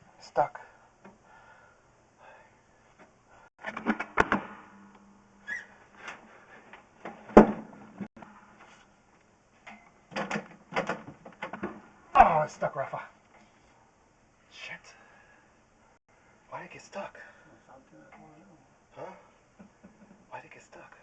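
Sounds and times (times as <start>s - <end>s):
push cable knocking and rattling: 10.1s - 11.8s.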